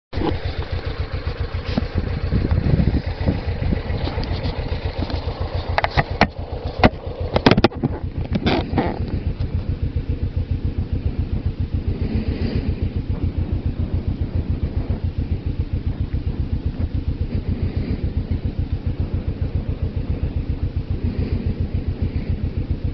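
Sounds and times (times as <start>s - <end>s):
motorcycle engine running: 0.1s - 22.9s
sharp clicks and knocks: 3.9s - 9.7s.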